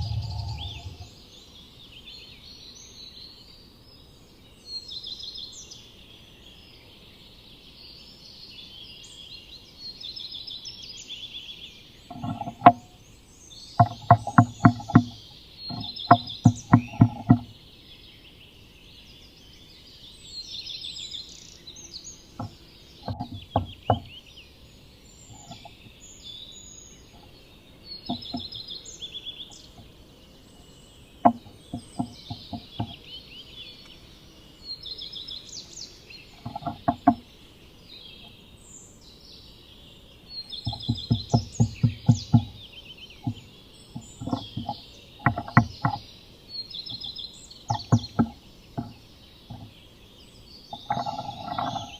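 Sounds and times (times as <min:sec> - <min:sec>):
bird tapping on wooden nest box: 0:00.0 - 0:01.1, 0:12.1 - 0:13.0, 0:13.7 - 0:17.6, 0:22.4 - 0:24.2, 0:25.3 - 0:25.9, 0:28.0 - 0:28.6, 0:31.2 - 0:33.1, 0:36.3 - 0:37.3, 0:40.5 - 0:46.1, 0:47.7 - 0:49.8, 0:50.7 - 0:51.9
small birds chirping: 0:00.0 - 0:51.9.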